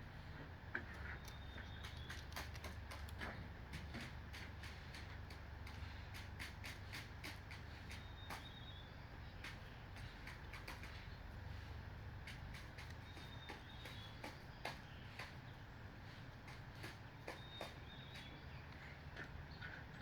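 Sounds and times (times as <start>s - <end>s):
steady low hum: 0.0s - 20.0s
bird feet tapping on roof: 0.8s - 8.6s, 9.3s - 11.2s, 12.2s - 15.5s, 16.3s - 18.4s.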